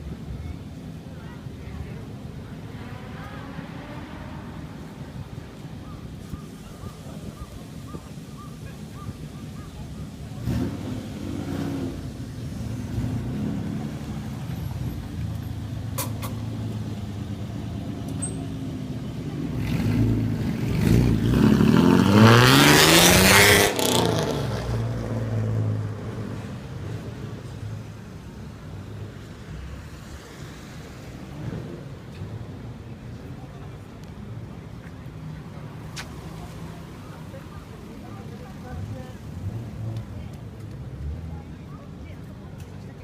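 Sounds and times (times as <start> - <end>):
car engine revving: 10.4 - 14.5, 19.2 - 26.1.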